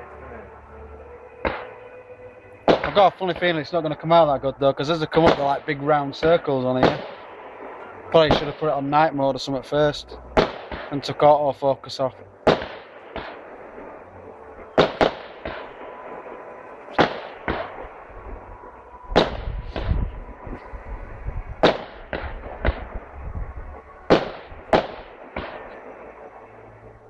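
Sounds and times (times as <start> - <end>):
low rumble: 12.1 - 27.0
firework shells bursting: 14.7 - 15.8.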